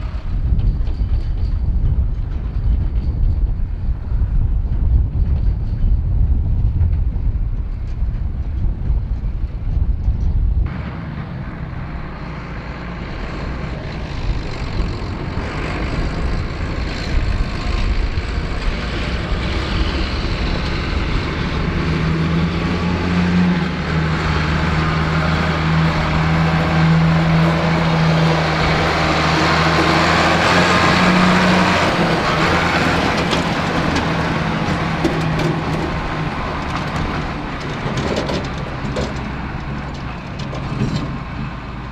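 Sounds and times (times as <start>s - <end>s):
tractor diesel engine humming: 10.6s - 41.9s.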